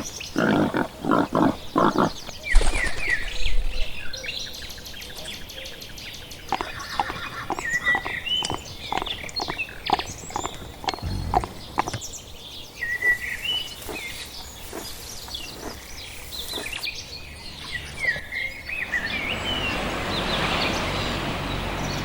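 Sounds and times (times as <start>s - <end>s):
birds chirping and whistling: 5.7s - 22.0s.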